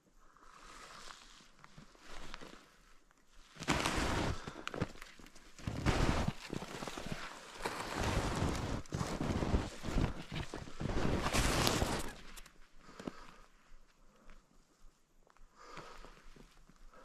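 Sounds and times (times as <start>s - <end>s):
footsteps through brush: 1.8s - 12.7s.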